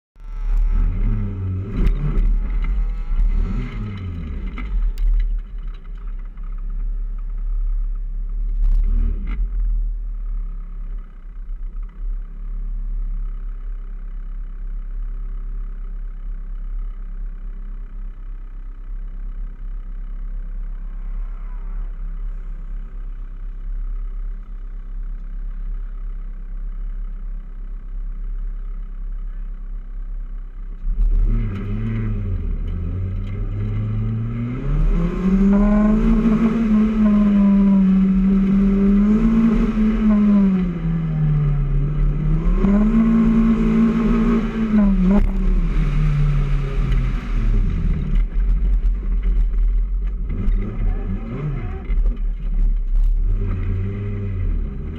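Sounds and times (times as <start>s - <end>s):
car engine revving: 0.2s - 7.4s, 30.8s - 54.9s
car engine idling: 0.2s - 8.8s, 9.4s - 54.9s.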